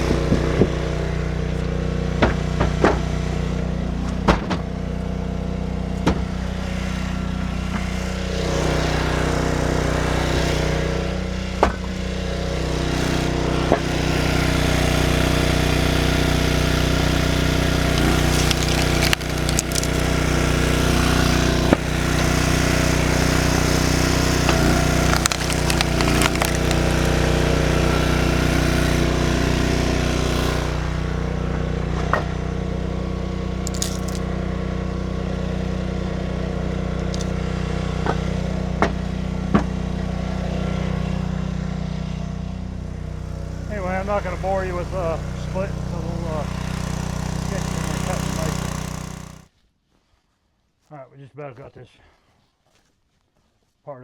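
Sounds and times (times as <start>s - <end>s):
small engine running: 0.0s - 49.5s
firewood splitting cracks: 16.3s - 29.3s, 33.6s - 34.4s, 37.0s - 37.4s.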